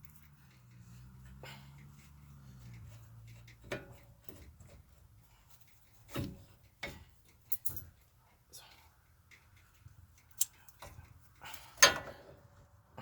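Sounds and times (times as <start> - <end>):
metal parts knocking and clinking: 7.5 - 8.0.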